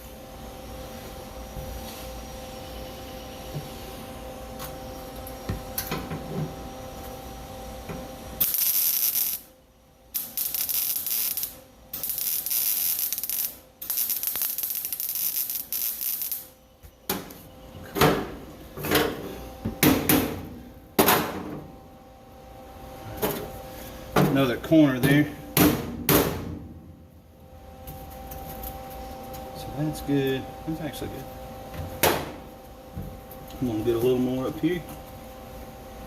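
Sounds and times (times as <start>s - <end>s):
steady hum: 0.0s - 36.0s
arc welder hissing and crackling: 8.1s - 17.5s
loud knocks of metal: 18.0s - 20.4s, 21.0s - 21.6s, 25.6s - 26.7s.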